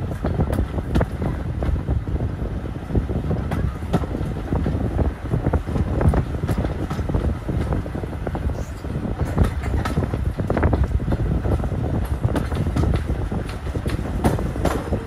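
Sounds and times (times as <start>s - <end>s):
railway carriage rumbling: 0.0s - 15.0s
wind buffeting microphone: 0.0s - 15.0s
knocks and rattles: 8.8s - 15.0s.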